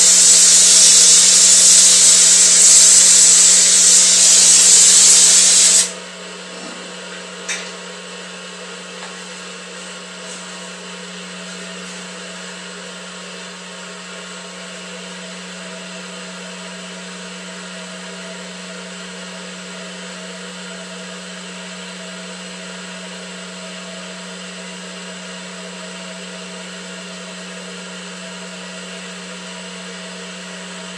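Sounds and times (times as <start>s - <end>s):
loud brazing hiss: 0.0s - 6.0s
welding machine humming: 0.0s - 6.0s.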